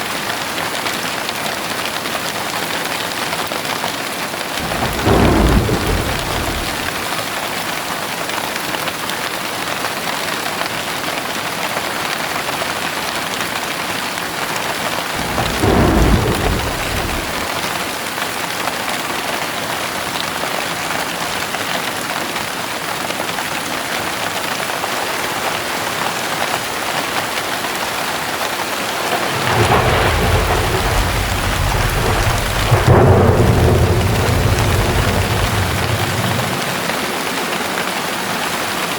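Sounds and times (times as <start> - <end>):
thunder rumbling: 4.6 - 7.5, 15.2 - 18.1, 28.9 - 38.5
heavy rain hissing: 4.6 - 7.6, 15.1 - 18.2, 28.5 - 38.9.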